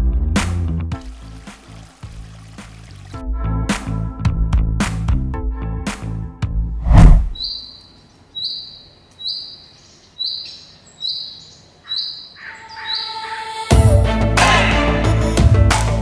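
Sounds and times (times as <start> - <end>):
music: 0.0 - 6.8, 13.1 - 16.0.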